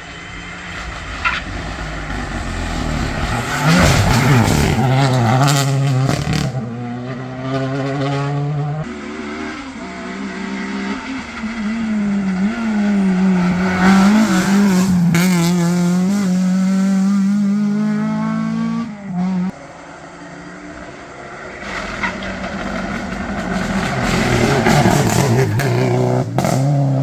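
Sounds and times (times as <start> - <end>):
rally car engine at full speed: 0.0 - 27.0
exhaust cracks: 0.4 - 6.6, 21.6 - 26.7.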